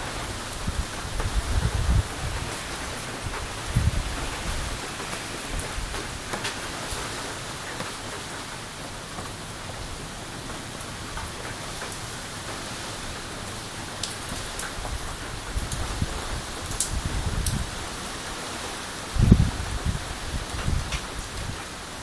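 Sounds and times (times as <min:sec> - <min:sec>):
wind gust buffeting microphone: 0:00.0 - 0:07.2, 0:14.6 - 0:18.3, 0:19.1 - 0:21.8
steady rain: 0:00.0 - 0:22.0
wind: 0:00.0 - 0:22.0.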